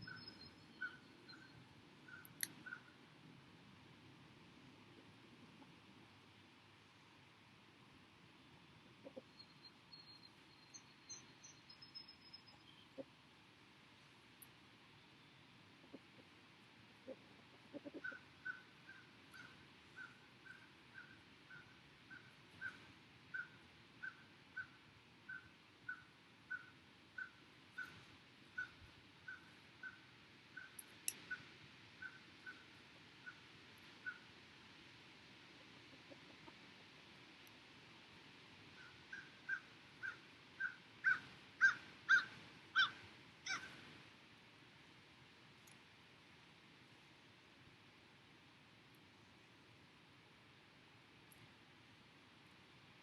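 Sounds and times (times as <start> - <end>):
faint bird chirping: 0.0 - 3.0, 9.0 - 13.2, 14.9 - 16.0, 17.0 - 34.3
faint steady hiss: 0.0 - 53.0
bird calling: 17.7 - 28.0, 38.8 - 43.8.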